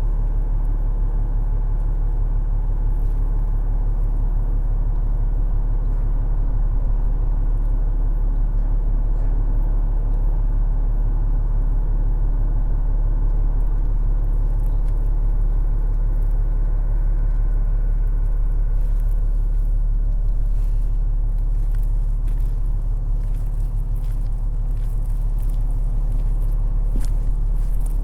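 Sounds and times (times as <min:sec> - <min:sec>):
wind buffeting microphone: 0:13.2 - 0:28.0.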